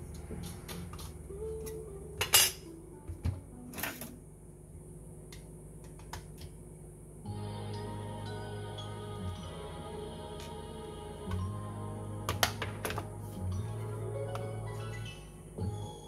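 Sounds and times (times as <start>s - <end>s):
low hum: 7.0s - 16.0s.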